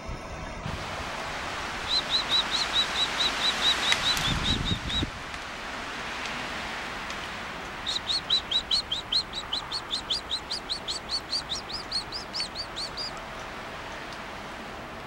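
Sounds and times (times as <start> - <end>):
bird chirping: 1.9 - 5.1, 7.8 - 13.2.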